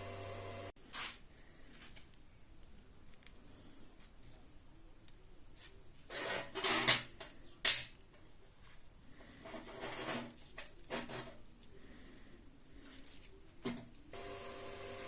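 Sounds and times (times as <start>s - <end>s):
rubbing and scraping on tripod parts: 5.6s - 7.5s, 8.4s - 11.6s, 12.7s - 13.8s.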